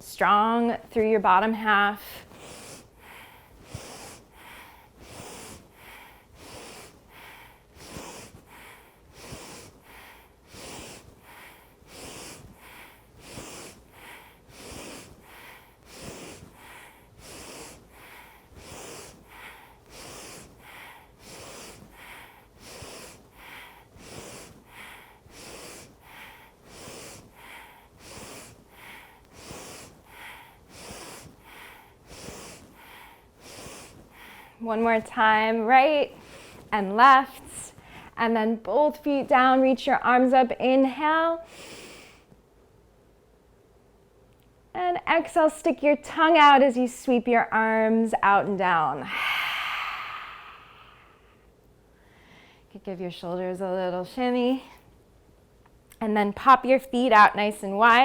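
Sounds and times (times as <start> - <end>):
woman breathing hard: 2.0 - 38.2, 41.4 - 42.4, 49.0 - 52.7.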